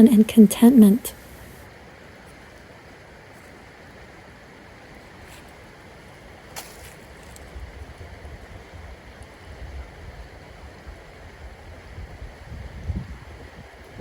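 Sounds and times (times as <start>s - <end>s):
forest stream flowing: 1.1s - 12.0s
wind buffeting microphone: 11.2s - 14.0s.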